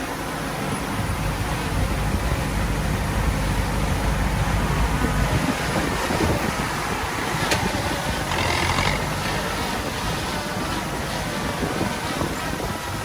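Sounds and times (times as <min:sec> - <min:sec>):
diesel engine rumble: 0:00.0 - 0:13.0.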